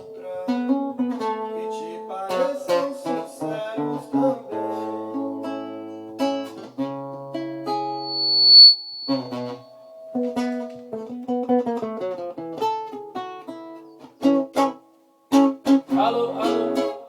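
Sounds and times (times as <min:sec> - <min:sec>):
acoustic guitar playing: 0:00.0 - 0:17.0
thin high whistling tone: 0:07.7 - 0:10.8.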